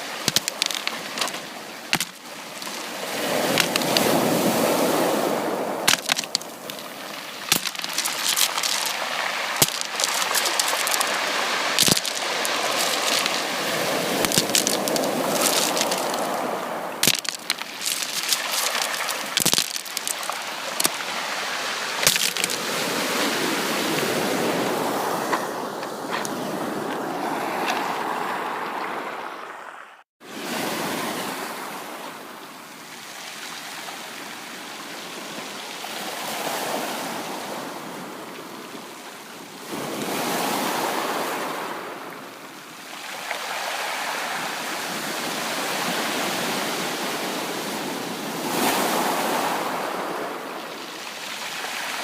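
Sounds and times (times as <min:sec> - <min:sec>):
sea waves breaking: 0:00.0 - 0:29.8.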